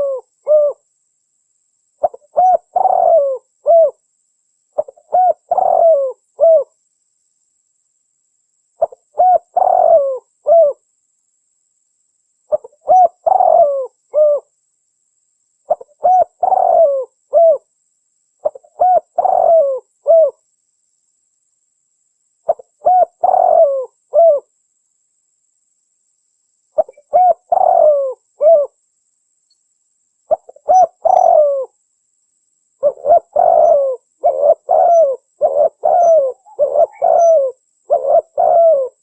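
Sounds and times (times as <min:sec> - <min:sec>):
dove cooing: 0:00.0 - 0:00.8, 0:02.0 - 0:04.0, 0:04.8 - 0:06.7, 0:08.8 - 0:10.8, 0:12.5 - 0:14.5, 0:15.7 - 0:17.7, 0:18.4 - 0:20.4, 0:22.5 - 0:24.5, 0:26.8 - 0:28.8, 0:30.3 - 0:31.8, 0:32.8 - 0:39.0.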